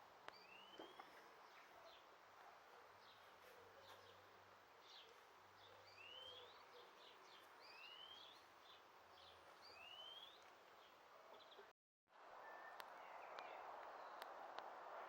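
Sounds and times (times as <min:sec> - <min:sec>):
bird chirps: 0:00.3 - 0:02.1, 0:04.9 - 0:11.7
rising whistled bird calls: 0:00.4 - 0:01.0, 0:05.9 - 0:06.9, 0:07.6 - 0:08.4, 0:09.7 - 0:10.4.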